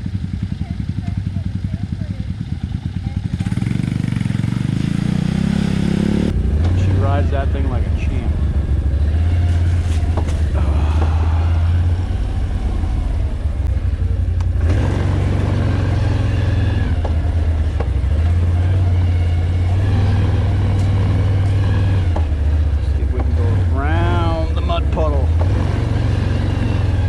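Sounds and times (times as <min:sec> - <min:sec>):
atv engine running: 0:00.0 - 0:27.0.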